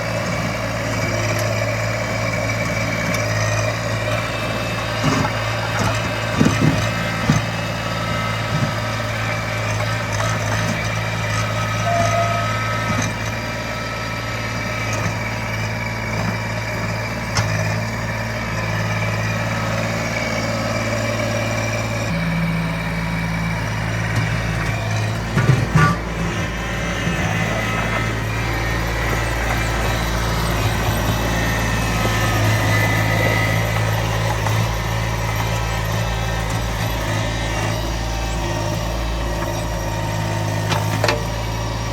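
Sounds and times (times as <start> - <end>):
small tractor engine running: 0.0 - 41.9.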